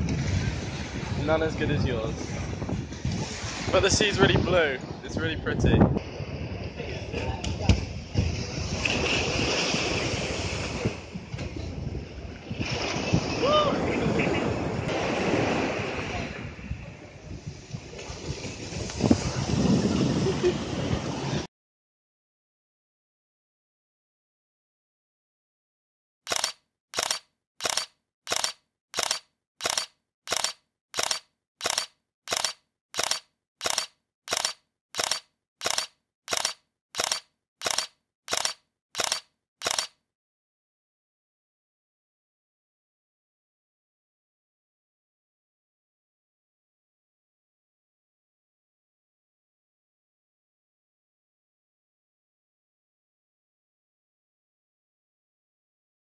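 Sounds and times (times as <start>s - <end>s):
wind buffeting microphone: 0.0s - 21.5s
sea waves washing on beach: 0.1s - 4.7s, 7.9s - 11.3s, 11.9s - 21.5s
short sharp cracks: 26.3s - 40.0s.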